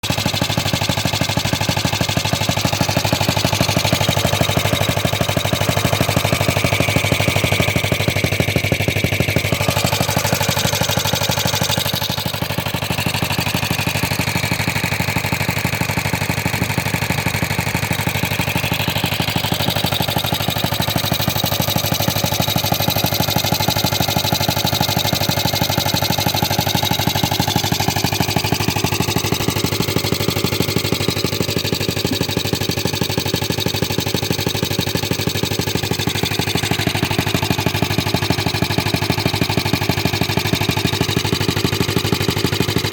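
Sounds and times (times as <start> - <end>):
small engine running steadily: 0.0 - 42.9.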